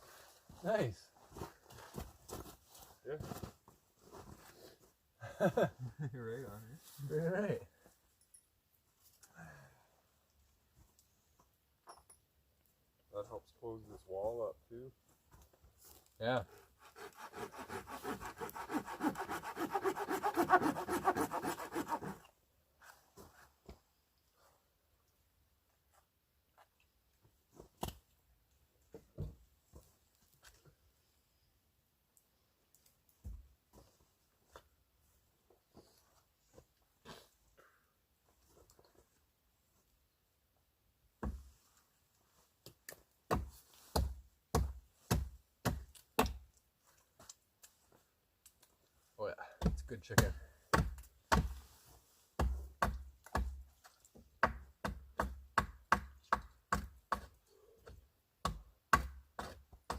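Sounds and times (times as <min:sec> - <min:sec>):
hand saw cutting wood: 0:16.5 - 0:22.2.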